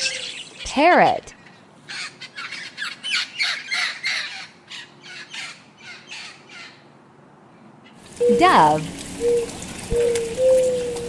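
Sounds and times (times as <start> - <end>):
parrot squawking: 8.2 - 9.5.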